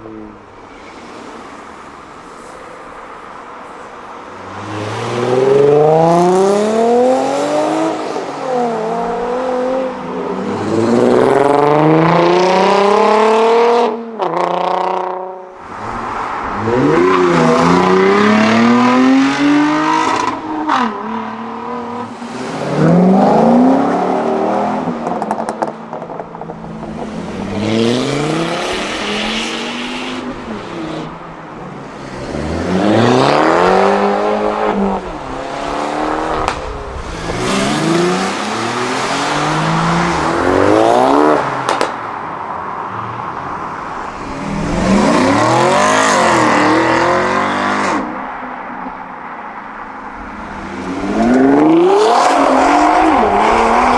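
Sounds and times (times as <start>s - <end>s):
car engines accelerating: 4.3s - 53.9s
exhaust pops: 36.4s - 37.1s, 41.6s - 42.0s.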